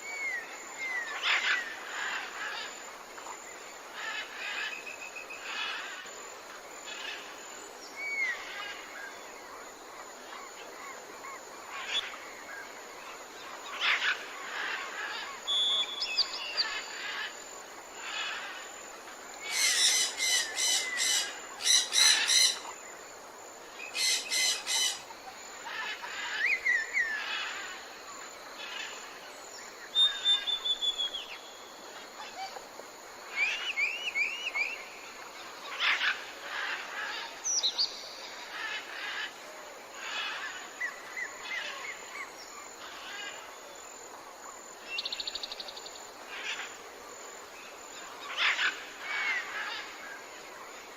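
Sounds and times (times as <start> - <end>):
soft background hiss: 0.0 - 50.9
songbirds chirping and singing: 19.4 - 22.8, 23.8 - 27.8.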